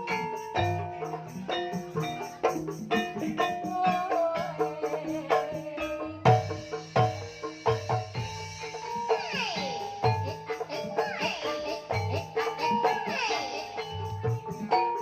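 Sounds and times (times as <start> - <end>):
mallet-struck tuned percussion melody: 0.0 - 15.0
deep hand-drum strokes: 6.2 - 9.3.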